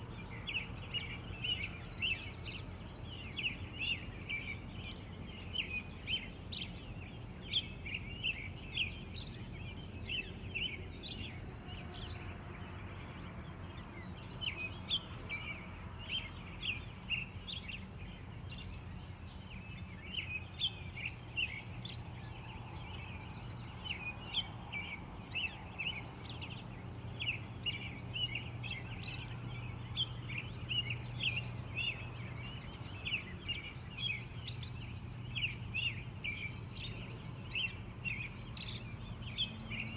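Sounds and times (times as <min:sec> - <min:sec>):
birds chirping and singing: 0:13.4 - 0:39.9.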